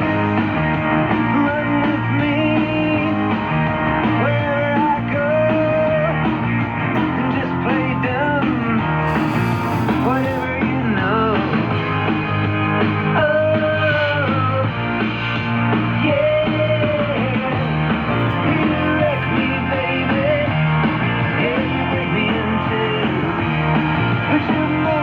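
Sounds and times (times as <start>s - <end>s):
radio hiss burst: 8.4s - 11.6s
song on shortwave radio: 16.2s - 20.6s.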